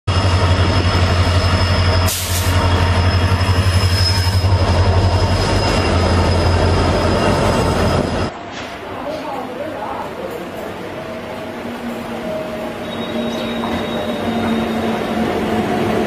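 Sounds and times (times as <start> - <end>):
train rolling deep drone: 0.1 - 16.0
high wheel squeal: 0.2 - 8.3, 12.1 - 16.0.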